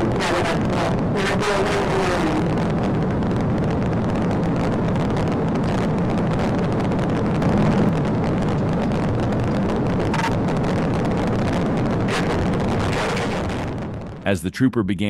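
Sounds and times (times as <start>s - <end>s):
road and tyre noise: 0.0s - 14.3s
car engine running: 5.2s - 14.1s.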